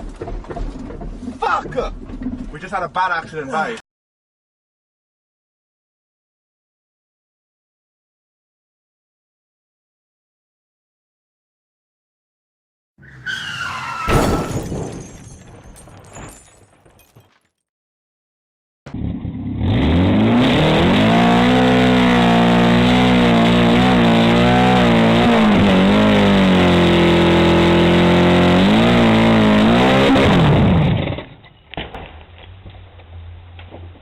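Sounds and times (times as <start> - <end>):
car engine revving hard: 18.9 - 31.2.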